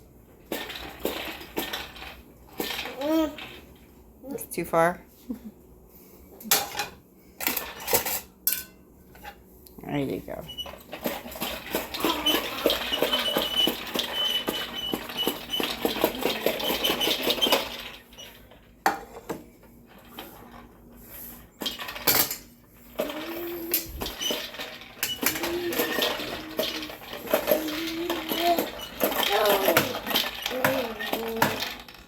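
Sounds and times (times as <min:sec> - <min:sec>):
push toy balls popping and rattling: 0:00.4 - 0:03.8, 0:10.6 - 0:20.8, 0:21.6 - 0:32.0.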